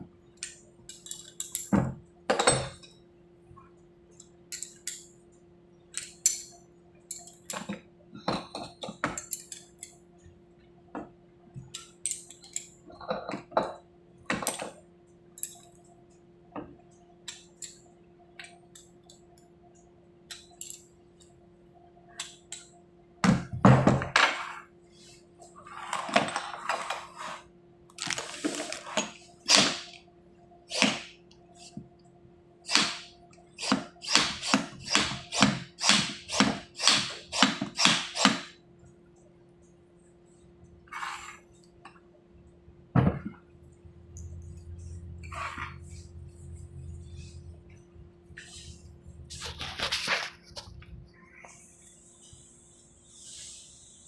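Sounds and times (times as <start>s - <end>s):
small metal parts clinking: 0.9s - 1.7s
steady low hum: 38.6s - 54.0s.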